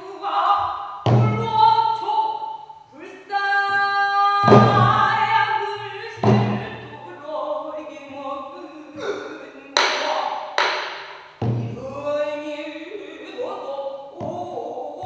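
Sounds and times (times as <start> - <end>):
barrel drum strokes: 1.1 - 1.8, 4.4 - 7.0, 10.6 - 12.0.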